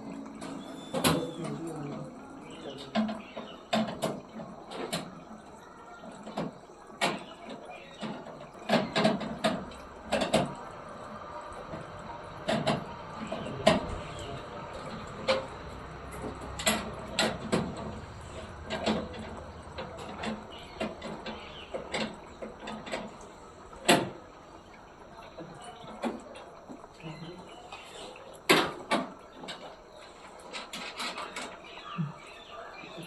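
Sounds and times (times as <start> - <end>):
sharp knocks and clatter: 2.8 - 5.2, 6.2 - 11.0, 11.6 - 24.2, 28.5 - 31.8.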